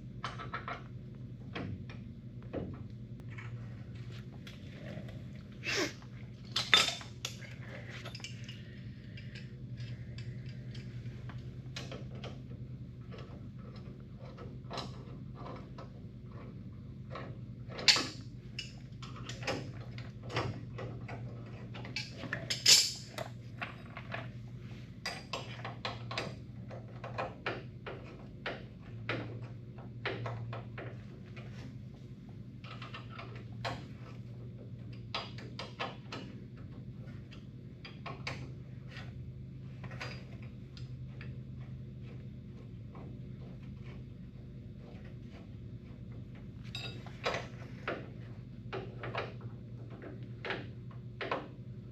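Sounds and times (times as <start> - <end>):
steady low hum: 0.0 - 51.9
metal tools clanking: 6.4 - 11.0, 46.7 - 47.4.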